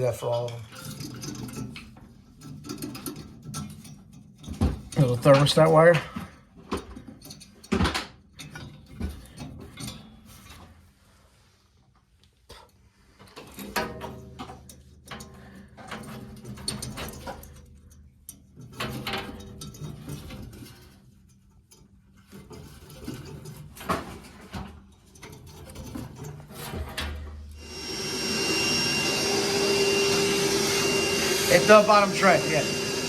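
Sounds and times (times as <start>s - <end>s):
metal knocks and clatter: 0.8s - 5.1s, 13.6s - 27.4s
vacuum cleaner running: 27.2s - 33.0s.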